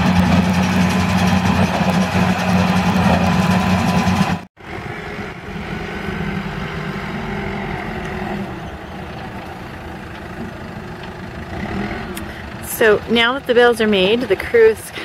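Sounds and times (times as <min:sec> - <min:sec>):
quieter vehicle engine running: 0:00.0 - 0:15.0
tractor engine running loud: 0:00.0 - 0:15.0.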